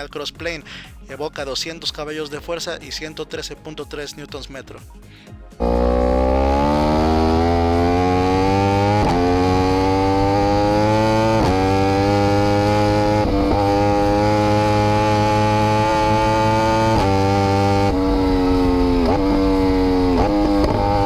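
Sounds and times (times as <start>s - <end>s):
motorcycle engine under load: 5.6s - 21.0s.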